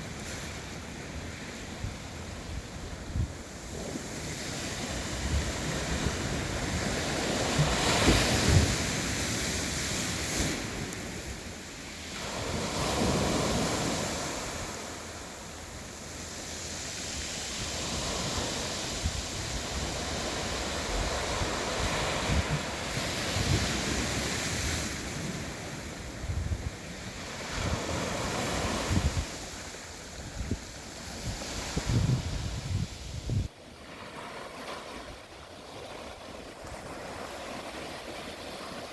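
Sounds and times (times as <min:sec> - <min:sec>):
wind buffeting microphone: 0:01.8 - 0:11.2, 0:17.3 - 0:25.5, 0:27.4 - 0:33.5.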